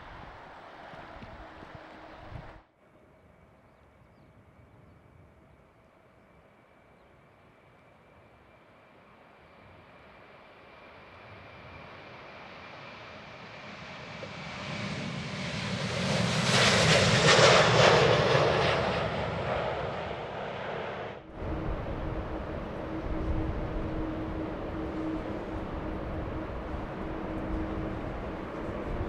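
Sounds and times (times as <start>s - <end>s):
jet airliner passing by: 4.5s - 29.0s
steady engine hum: 21.2s - 29.0s.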